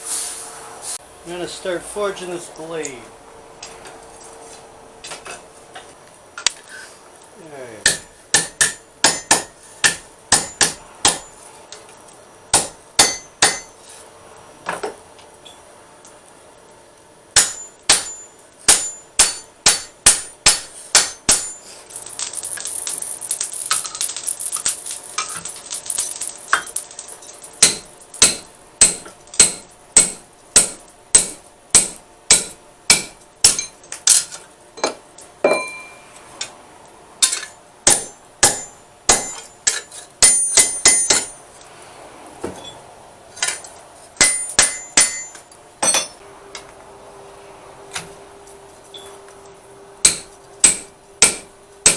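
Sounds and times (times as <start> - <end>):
hammer striking steel on anvil: 7.8 - 11.4, 12.5 - 13.8, 17.4 - 21.8, 27.6 - 33.8, 34.8 - 36.0, 37.2 - 41.4, 44.2 - 46.2, 50.0 - 51.9
hissing noise: 21.6 - 28.6.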